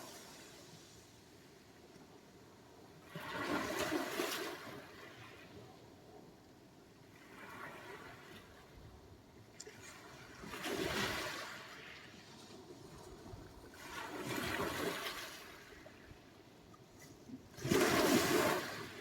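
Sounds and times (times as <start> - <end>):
sea waves washing on shore: 0.0 - 1.5, 17.5 - 19.0.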